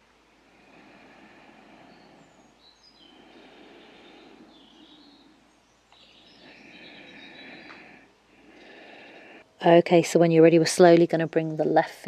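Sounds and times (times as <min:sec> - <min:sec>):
soft steady background hiss: 0:00.0 - 0:12.0
high bird chirps: 0:01.9 - 0:08.0.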